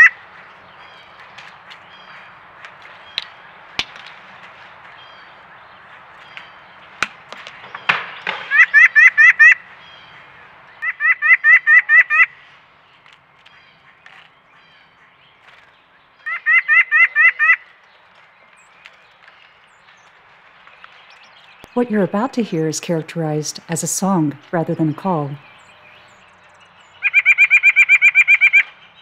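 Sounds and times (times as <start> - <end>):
nuthatch nasal calls: 0.0 - 0.2, 27.0 - 28.7.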